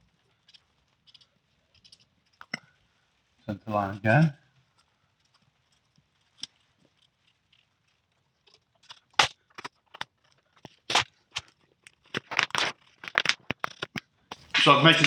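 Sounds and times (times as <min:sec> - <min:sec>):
plastic sheet crackling: 0:09.2 - 0:15.0.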